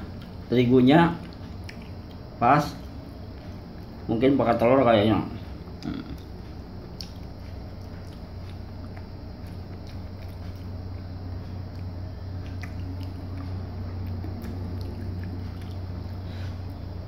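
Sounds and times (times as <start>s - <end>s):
steady low hum: 0.0s - 17.0s
person chewing crispy fritter: 5.8s - 17.0s.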